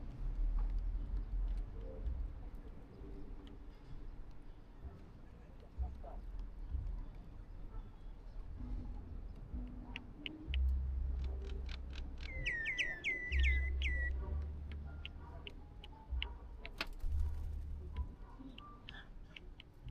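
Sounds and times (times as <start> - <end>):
light clicks and taps: 9.3 - 12.2, 17.9 - 19.9
bird sharp calls: 11.4 - 14.4.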